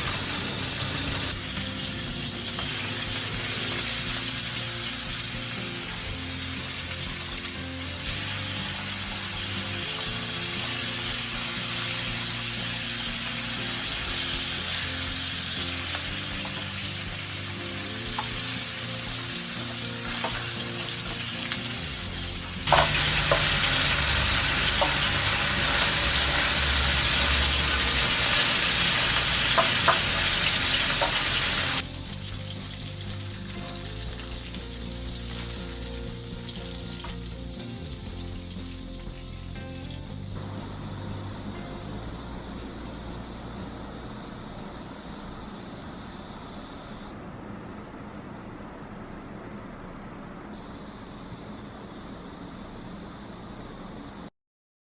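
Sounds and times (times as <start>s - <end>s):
fish sizzling in oil: 0.0s - 40.4s.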